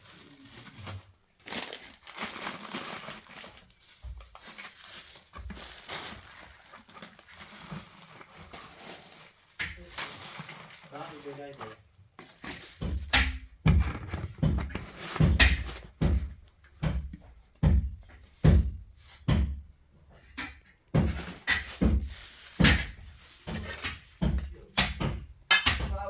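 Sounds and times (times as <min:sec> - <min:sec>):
irregular knocks and thuds: 0:03.9 - 0:04.5, 0:12.2 - 0:26.0.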